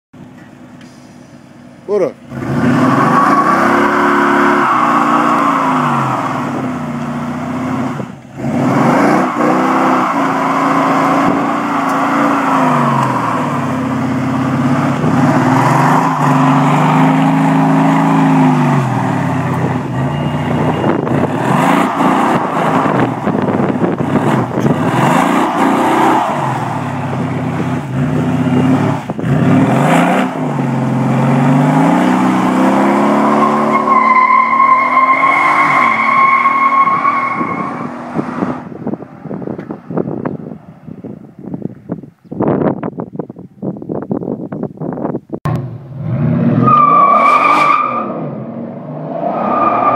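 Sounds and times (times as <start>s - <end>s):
car engine revving: 2.2s - 40.6s
tyres squealing: 32.3s - 38.0s.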